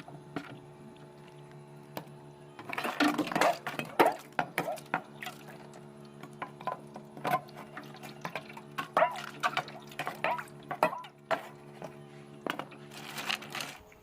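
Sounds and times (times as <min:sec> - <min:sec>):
freezer low hum: 0:00.0 - 0:14.0
ice cracking in freezer: 0:12.5 - 0:14.0.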